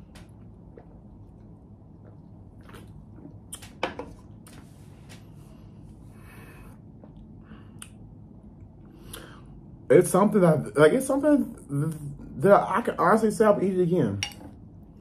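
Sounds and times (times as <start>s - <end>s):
person chewing wetly: 0.0s - 4.5s, 6.7s - 9.3s
mouth clicks and smacks: 7.0s - 9.3s.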